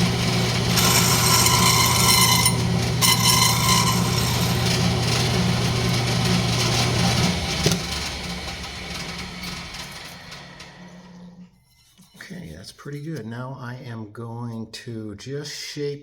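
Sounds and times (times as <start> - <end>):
turning tool cutting wood: 0.0 - 10.2
wood lathe motor hum: 0.0 - 11.0.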